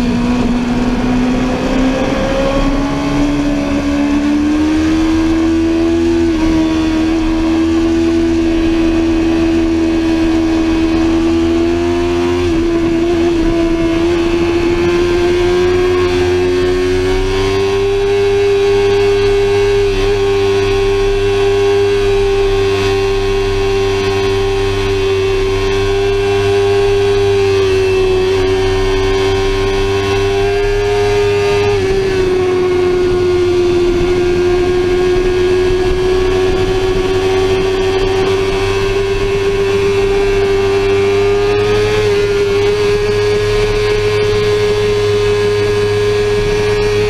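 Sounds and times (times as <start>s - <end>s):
low wind noise: 0.0s - 47.0s
motorcycle engine at high revs: 0.0s - 47.0s.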